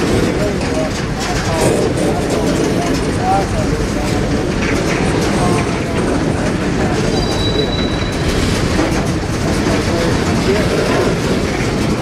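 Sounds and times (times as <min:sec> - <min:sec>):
clicking over rail joints: 0:00.0 - 0:12.0
freight train wheels rumbling: 0:00.0 - 0:12.0
high wheel squeal: 0:07.0 - 0:08.4.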